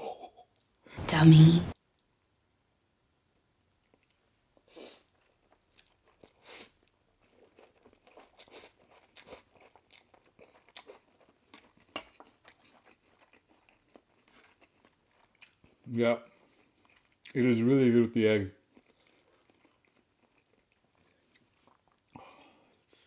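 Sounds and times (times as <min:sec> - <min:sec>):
chewing and mouth smacking: 0:03.8 - 0:17.4, 0:18.6 - 0:22.2.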